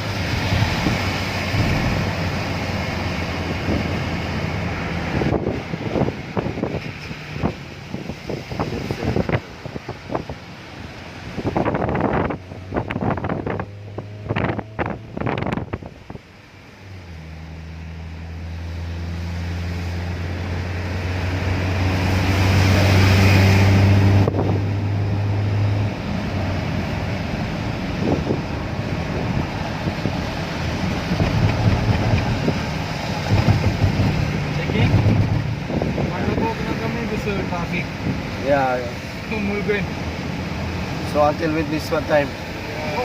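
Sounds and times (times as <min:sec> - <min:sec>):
tyre and road noise hiss: 0:00.0 - 0:43.0
vehicle engine hum: 0:00.0 - 0:43.0
knocks and rattles: 0:31.1 - 0:32.6, 0:33.2 - 0:35.5.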